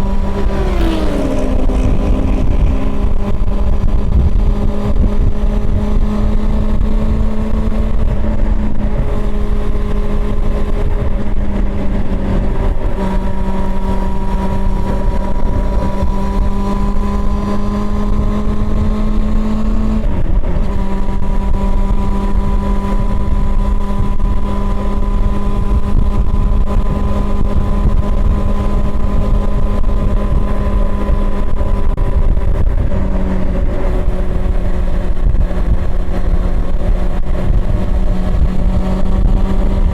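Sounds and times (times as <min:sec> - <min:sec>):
low rumble: 0:00.0 - 0:16.5
motorcycle engine at high revs: 0:00.0 - 0:39.9.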